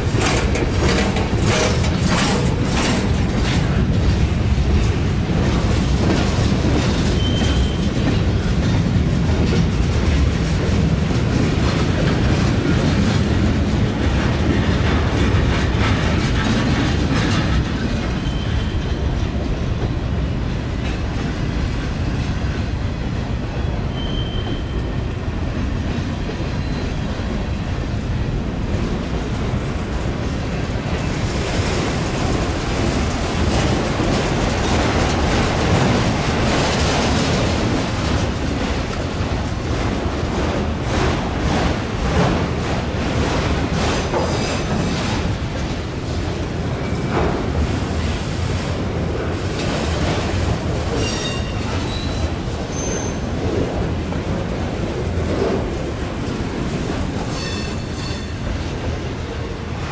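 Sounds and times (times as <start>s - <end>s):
clicks over rail joints: 0.0s - 13.4s
train wheels rumbling: 0.0s - 59.9s
faint wheel squeals: 23.9s - 24.8s.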